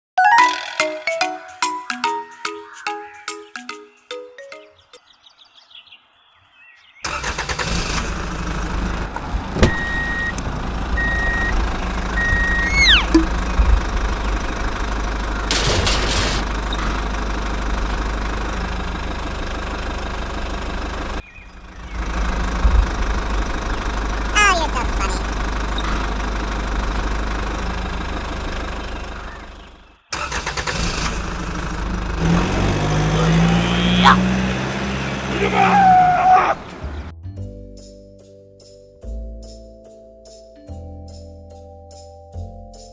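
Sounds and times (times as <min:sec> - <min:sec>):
tractor engine rumbling: 0:07.1 - 0:37.1
reversing beeps: 0:09.7 - 0:10.4, 0:11.0 - 0:11.6, 0:12.2 - 0:13.2
short falling tone: 0:12.2 - 0:13.4.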